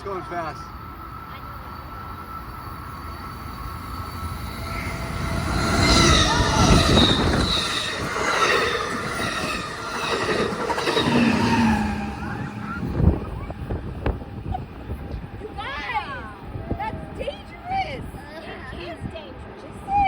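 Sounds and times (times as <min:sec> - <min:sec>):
train wheels rushing on rails: 0:00.0 - 0:18.7
high squealing: 0:02.0 - 0:14.5
wind buffeting microphone: 0:02.6 - 0:20.0
heavy low rumble: 0:03.1 - 0:15.6.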